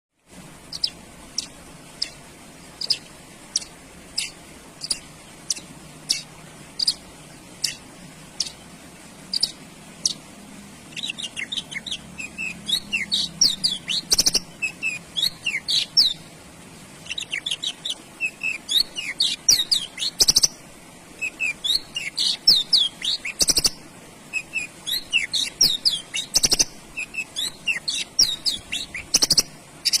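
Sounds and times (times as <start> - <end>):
bird twittering song phrases: 0.6 - 10.3, 10.9 - 16.3, 17.0 - 20.6, 21.2 - 30.0.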